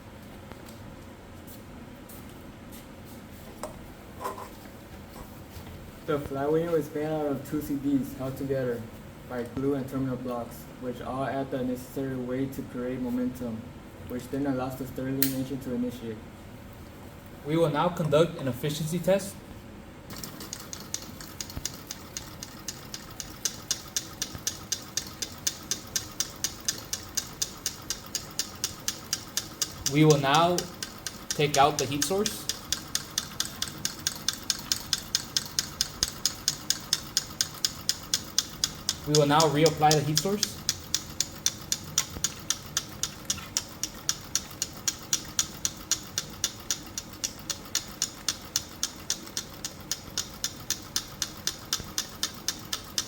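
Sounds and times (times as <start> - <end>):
stirling engine ticking: 20.1 - 53.0.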